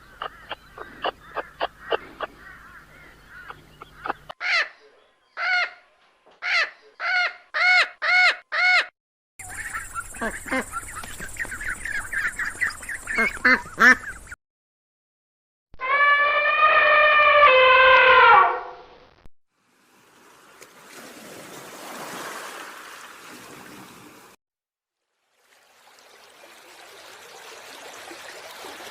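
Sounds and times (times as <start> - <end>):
waterfowl calling: 0.0 - 14.4.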